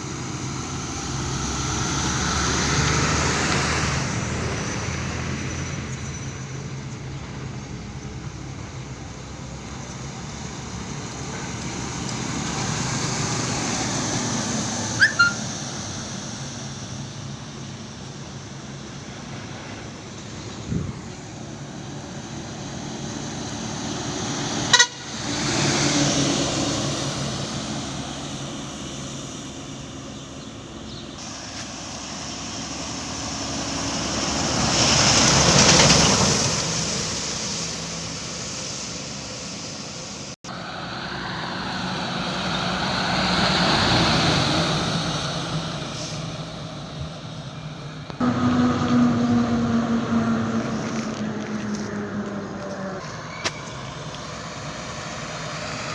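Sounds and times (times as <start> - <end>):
road vehicles passing: 0.0 - 55.9
vehicle horn: 24.7 - 25.2.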